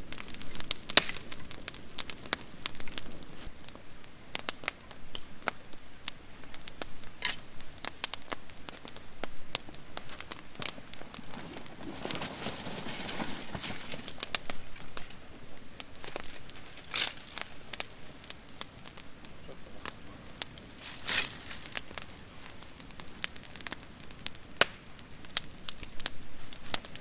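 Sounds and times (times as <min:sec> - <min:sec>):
wood fire crackling and popping: 0:00.0 - 0:27.0
rustling noise: 0:09.8 - 0:18.0, 0:19.9 - 0:22.6.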